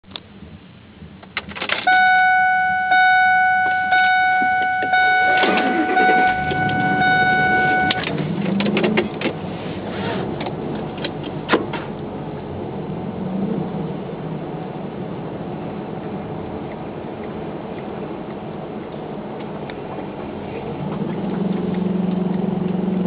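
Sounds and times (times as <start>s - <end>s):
truck engine rumble: 0.0s - 23.0s
dashboard warning chime: 1.8s - 8.1s.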